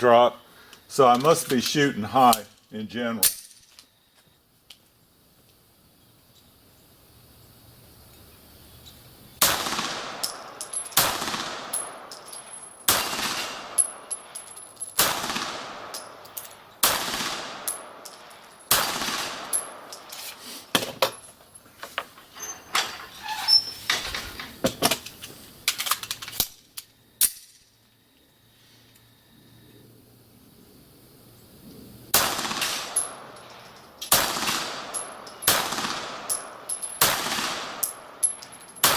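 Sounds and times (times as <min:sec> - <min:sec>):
pistol shots echoing: 0:09.4 - 0:14.4, 0:15.0 - 0:19.9, 0:32.1 - 0:33.4, 0:34.1 - 0:38.9.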